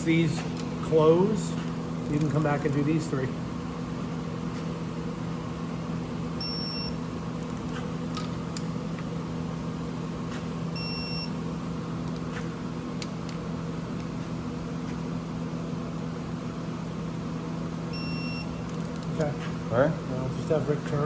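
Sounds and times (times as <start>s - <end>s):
steady low hum: 0.0s - 21.0s
short electronic beeps: 6.4s - 7.0s, 10.8s - 11.3s.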